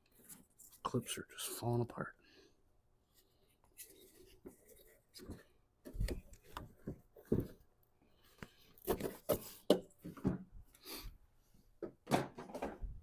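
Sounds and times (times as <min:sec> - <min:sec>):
plastic trim knocking and clattering: 0:11.8 - 0:12.9.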